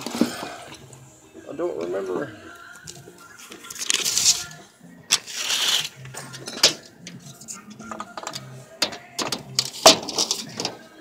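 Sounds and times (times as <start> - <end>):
tape measure hiss: 5.1 - 6.0.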